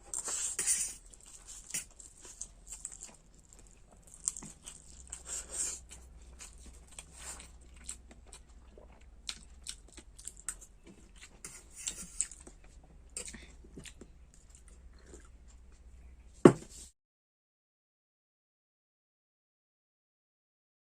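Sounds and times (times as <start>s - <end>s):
person chewing noodles: 0.0s - 15.9s.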